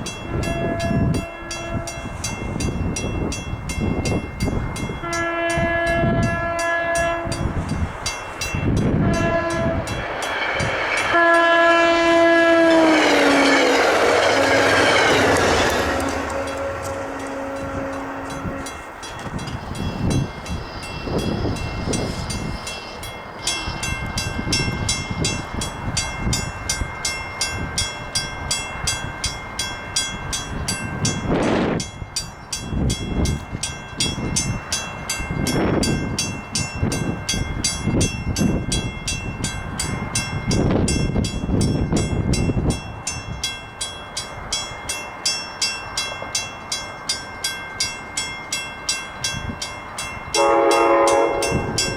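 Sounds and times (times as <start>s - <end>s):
train wheels clicking over rail joints: 4.0s - 27.0s
rushing rumble: 7.2s - 27.0s.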